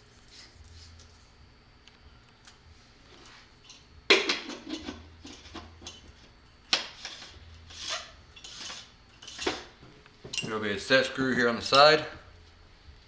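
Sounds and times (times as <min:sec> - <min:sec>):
tools clattering: 0:06.9 - 0:09.7, 0:10.3 - 0:10.6.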